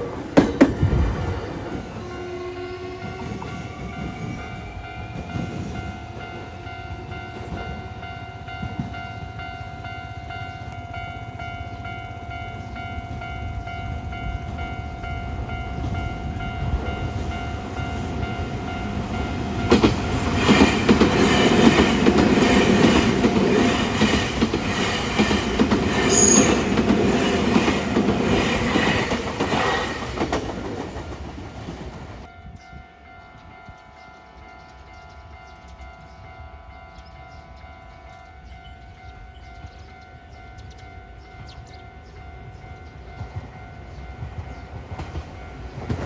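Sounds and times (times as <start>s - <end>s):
crossing warning bell ringing: 1.5s - 31.2s, 32.2s - 46.0s
train wheels clattering: 18.8s - 32.3s, 42.8s - 46.0s
wheel squeal: 26.1s - 26.8s.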